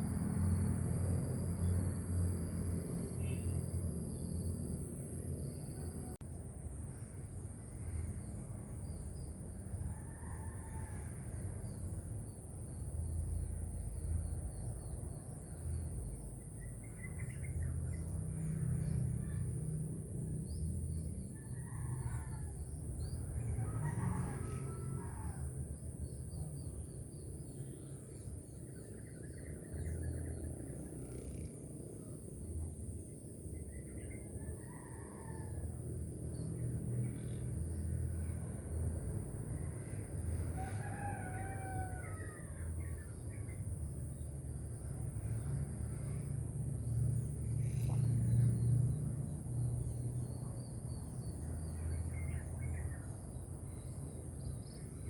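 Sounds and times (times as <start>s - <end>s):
constant low rumble: 0.0s - 55.0s
roosters crowing: 23.4s - 25.6s, 40.5s - 42.8s.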